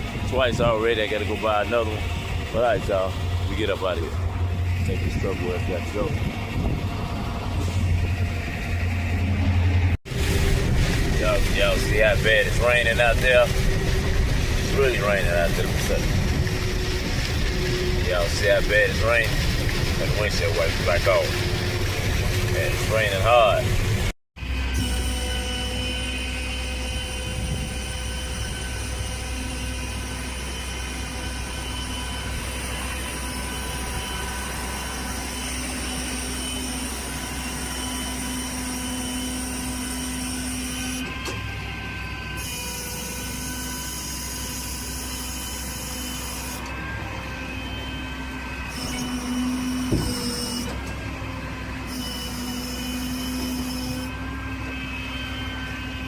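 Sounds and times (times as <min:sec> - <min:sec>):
road noise: 0:00.0 - 0:24.8, 0:46.5 - 0:52.8
truck engine drone: 0:00.0 - 0:56.0.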